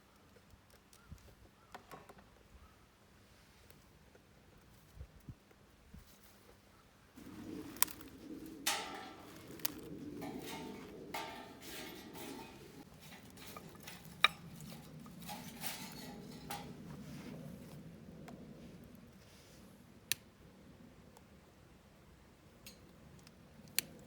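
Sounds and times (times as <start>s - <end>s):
metal cookware clinking and scraping: 7.2s - 17.4s
low rustle: 7.2s - 19.9s.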